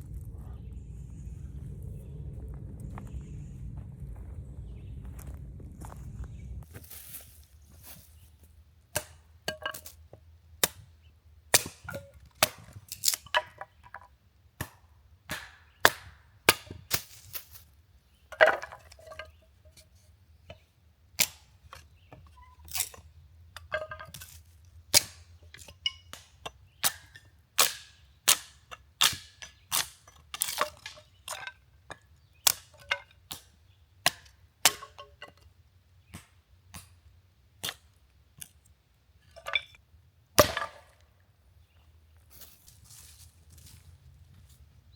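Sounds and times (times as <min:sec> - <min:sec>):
sharp cracks and knocks: 0:14.6 - 0:17.6, 0:22.7 - 0:35.4, 0:36.1 - 0:37.0, 0:40.4 - 0:41.1.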